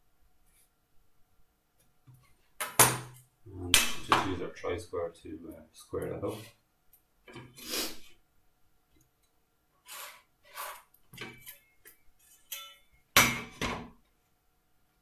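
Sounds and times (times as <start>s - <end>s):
pencil scratching along a square: 9.8s - 10.9s.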